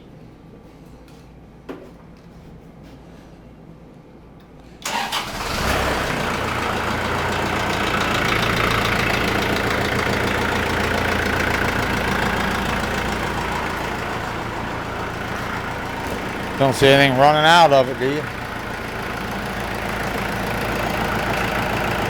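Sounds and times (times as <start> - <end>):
tractor engine starting and running: 4.8 - 22.0.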